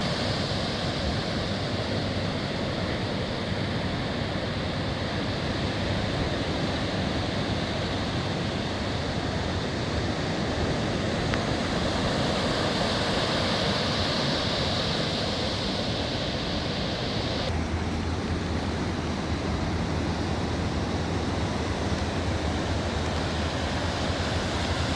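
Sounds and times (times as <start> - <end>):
ocean surf washing on beach: 0.0 - 24.9
wind buffeting microphone: 10.9 - 24.9.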